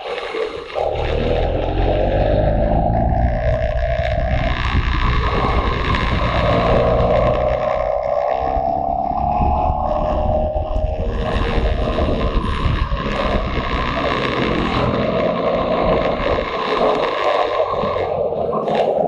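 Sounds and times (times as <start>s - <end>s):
wind rushing over microphone: 0.0s - 19.0s
motorcycle engine running: 0.8s - 19.0s.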